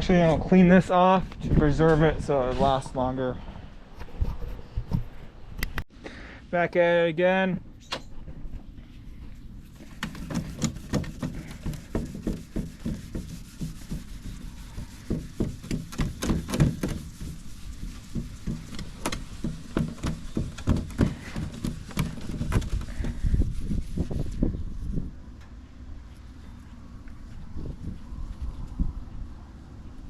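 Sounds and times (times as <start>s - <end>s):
hand scrubbing wood: 9.6s - 24.6s.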